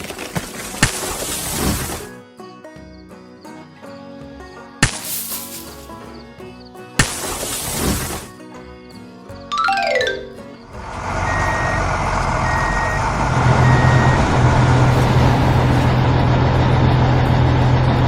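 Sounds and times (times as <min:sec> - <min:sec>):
truck engine hum: 0:10.8 - 0:18.0
reversing beeps: 0:12.4 - 0:13.0, 0:13.6 - 0:14.3.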